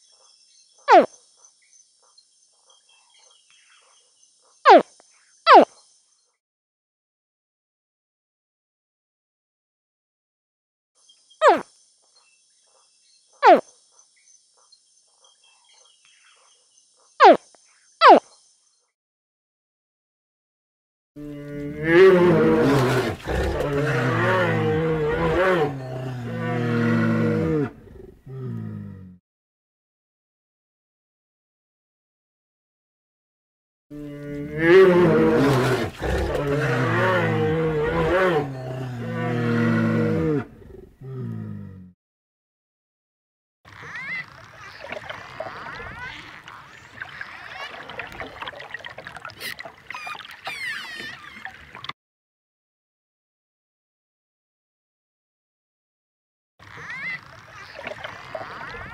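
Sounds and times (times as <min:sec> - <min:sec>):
animal squeals and whistles: 0:00.9 - 0:01.1, 0:11.4 - 0:11.7, 0:13.4 - 0:13.6, 0:43.7 - 0:47.8, 0:49.4 - 0:51.5, 0:56.6 - 0:58.9.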